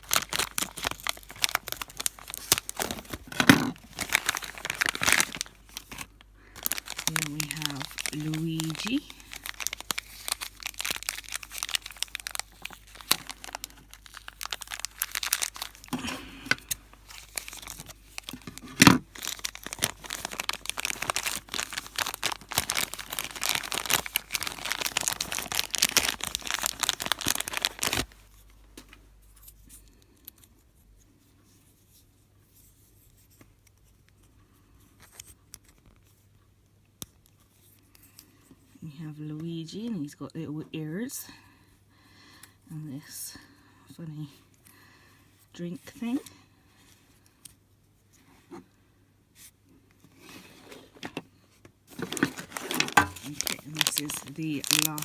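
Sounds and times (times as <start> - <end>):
plastic packet crinkling and tearing: 0.0 - 28.5, 51.9 - 55.0.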